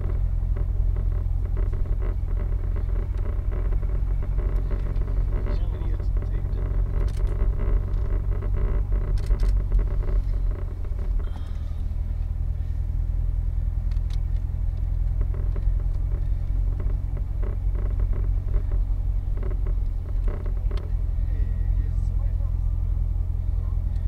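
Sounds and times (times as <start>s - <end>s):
car engine running low: 0.0s - 24.0s
faint clicks: 13.8s - 21.0s.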